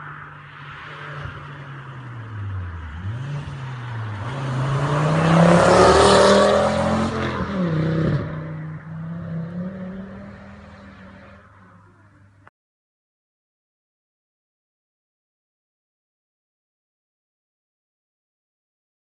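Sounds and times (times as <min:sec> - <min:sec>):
car engine accelerating past: 0:00.6 - 0:11.8.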